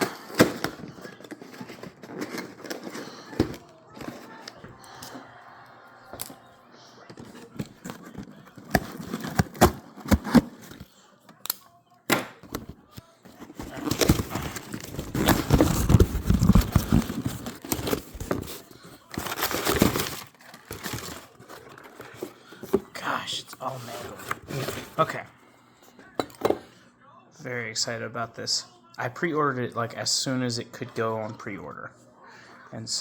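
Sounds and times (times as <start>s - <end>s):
cardboard rustling and scraping: 0.0s - 5.2s, 7.1s - 10.9s, 12.5s - 25.2s.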